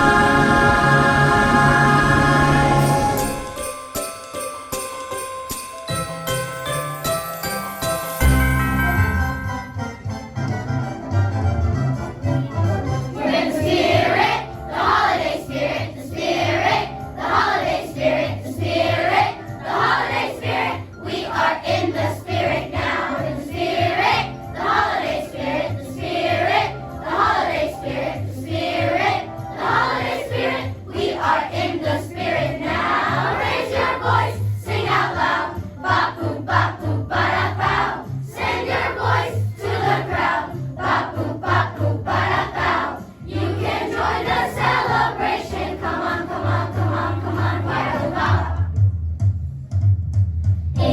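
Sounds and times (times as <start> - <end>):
choir singing: 0.0 - 3.6, 13.1 - 48.7
instrumental accompaniment: 0.0 - 50.9.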